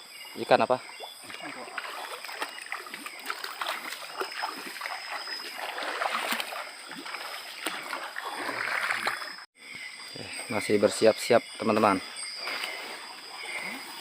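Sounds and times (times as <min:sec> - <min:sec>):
water splashing in river: 0:00.8 - 0:09.5.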